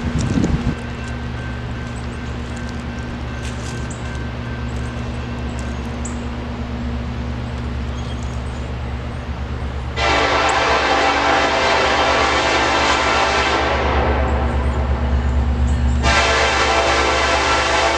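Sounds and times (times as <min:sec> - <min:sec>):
diesel locomotives droning: 0:00.0 - 0:17.9
locomotive horn blast: 0:09.9 - 0:15.1, 0:16.0 - 0:17.9.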